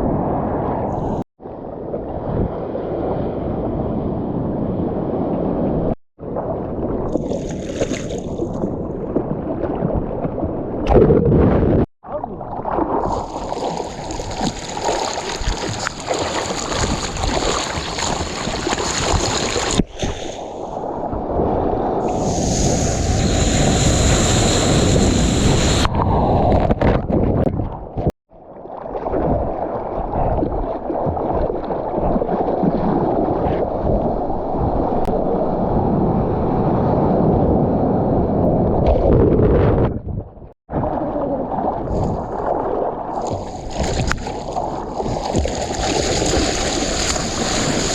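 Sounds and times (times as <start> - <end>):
surf and rushing water: 12.1 - 26.7, 28.5 - 38.9, 40.7 - 47.9
wind buffeting microphone: 15.4 - 28.1, 29.2 - 47.9.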